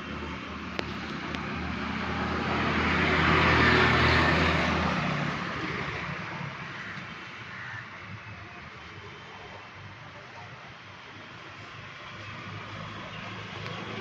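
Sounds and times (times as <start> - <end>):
motor vehicle passing by: 0.0 - 7.7, 11.8 - 14.0.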